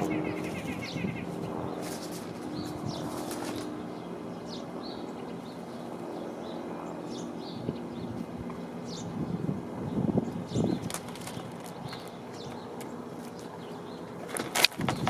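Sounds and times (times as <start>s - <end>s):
small birds chirping: 0.0s - 15.0s
steady low hum: 0.0s - 15.0s.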